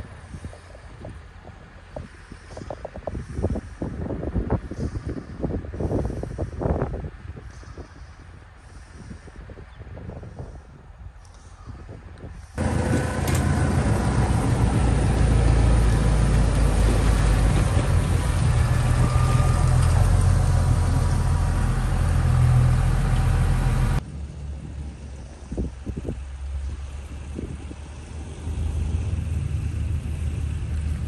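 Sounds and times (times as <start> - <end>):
tractor engine running: 12.4 - 31.0.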